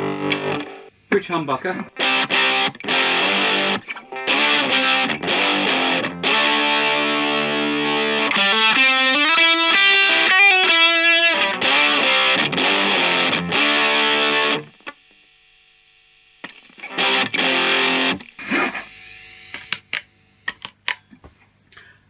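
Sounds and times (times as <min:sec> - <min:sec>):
overdriven electric guitar chords: 0:00.0 - 0:00.9, 0:01.9 - 0:14.9, 0:16.4 - 0:20.0
sharp clicks: 0:19.6 - 0:21.0.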